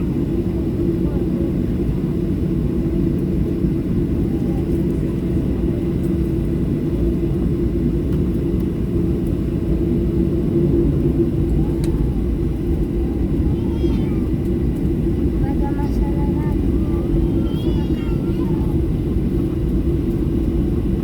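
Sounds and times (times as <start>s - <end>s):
airplane engines rumbling in cabin: 0.0s - 21.0s.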